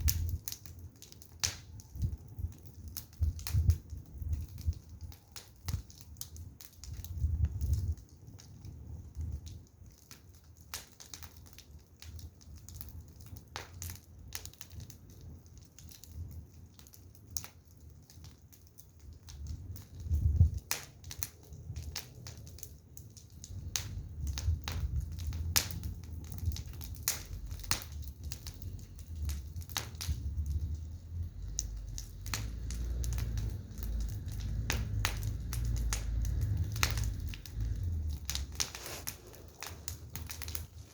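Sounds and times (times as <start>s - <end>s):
firewood crackling and popping: 0.0s - 40.9s
low rumble: 30.0s - 40.9s.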